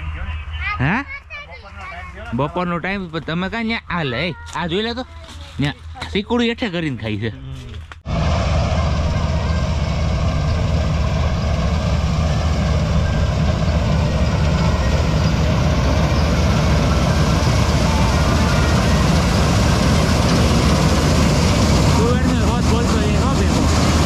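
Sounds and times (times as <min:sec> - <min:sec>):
combine harvester engine drone: 0:00.0 - 0:01.0, 0:08.1 - 0:24.0.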